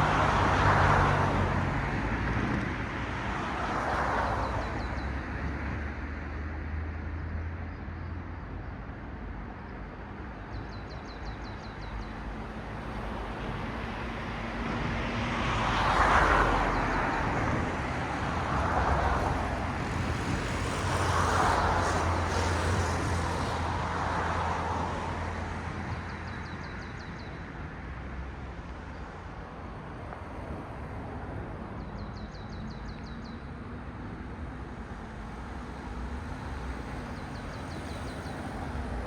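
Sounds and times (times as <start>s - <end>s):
cars passing on a road: 0.0s - 39.0s
low traffic hum: 8.6s - 39.0s.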